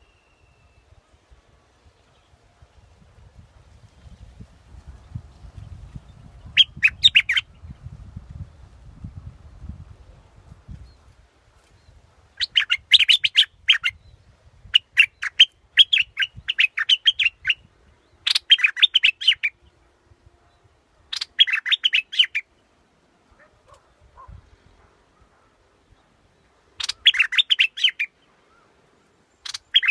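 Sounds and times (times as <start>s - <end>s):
bird singing bright chirps: 0.0s - 3.0s, 3.8s - 8.1s, 10.7s - 19.8s, 20.5s - 22.7s, 25.8s - 29.9s.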